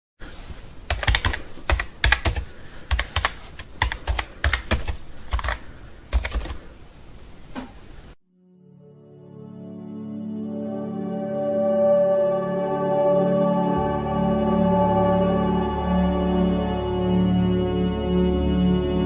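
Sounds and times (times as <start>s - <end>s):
keyboard key clicks: 0.9s - 6.6s
low steady musical tone: 8.4s - 19.0s.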